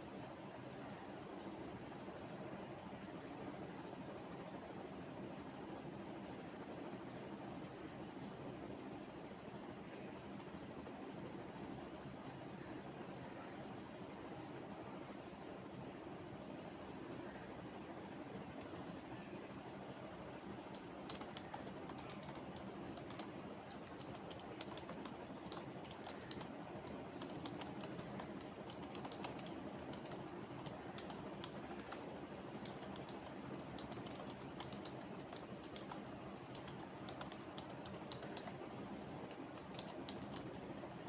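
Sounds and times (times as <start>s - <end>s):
steady background hiss: 0.0s - 41.0s
keyboard key clicks: 20.7s - 32.0s, 32.6s - 38.6s, 39.3s - 40.5s.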